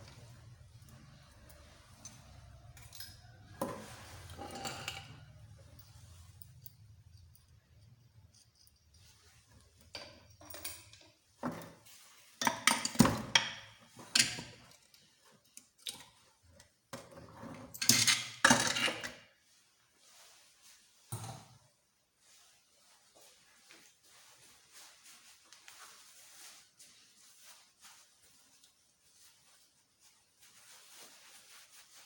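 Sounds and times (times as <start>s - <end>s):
metal parts and tools clinking: 1.9s - 9.0s, 9.8s - 11.2s, 17.6s - 19.1s.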